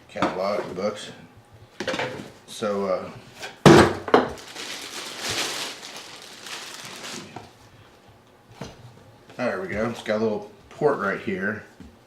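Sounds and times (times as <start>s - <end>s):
packaging rustling and crinkling: 4.1s - 7.6s.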